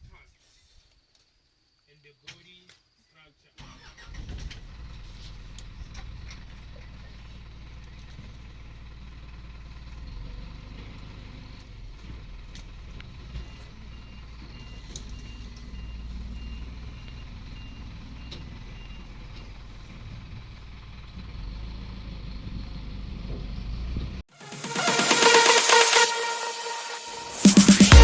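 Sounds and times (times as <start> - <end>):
vehicle engine idling: 4.9 - 24.0
high electronic beeps: 24.4 - 28.0.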